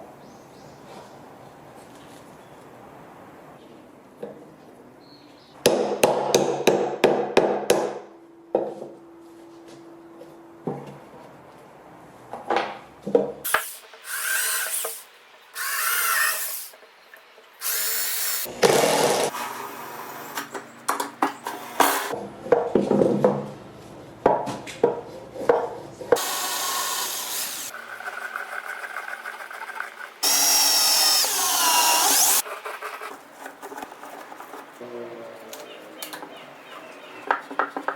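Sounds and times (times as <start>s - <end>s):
power drill driving into wood: 17.6s - 19.6s, 30.2s - 32.4s.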